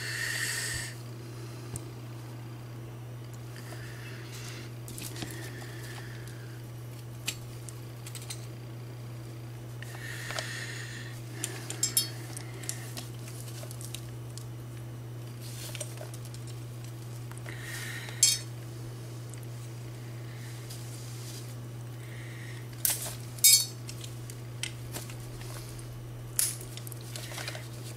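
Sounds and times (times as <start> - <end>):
steady low hum: 0.0 - 27.9
metal toy parts clinking: 11.7 - 12.4, 18.2 - 18.5, 22.9 - 24.0.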